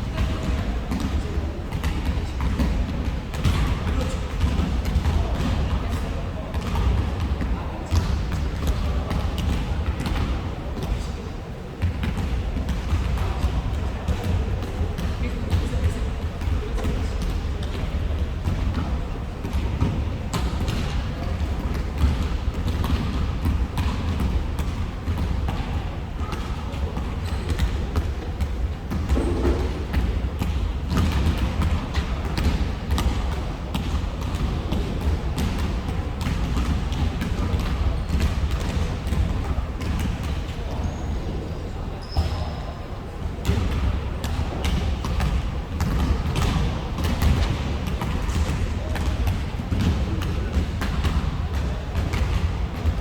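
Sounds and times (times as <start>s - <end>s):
low rumble of play in hall: 0.0s - 53.0s
basketballs bouncing on wooden floor: 0.1s - 11.0s, 11.8s - 40.9s, 43.4s - 53.0s
low hall rumble: 27.8s - 41.9s.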